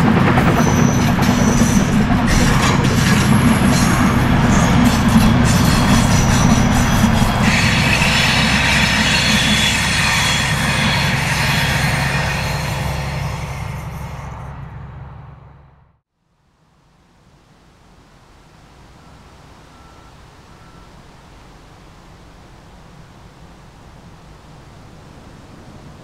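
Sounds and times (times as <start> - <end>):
train wheels rumbling on rails: 0.0 - 15.8
high hiss or squeal: 0.5 - 14.5.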